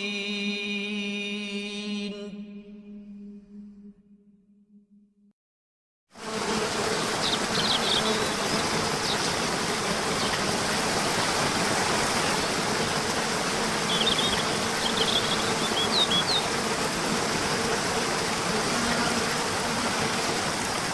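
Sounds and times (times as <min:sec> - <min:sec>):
waterfall rushing: 0:06.6 - 0:20.9.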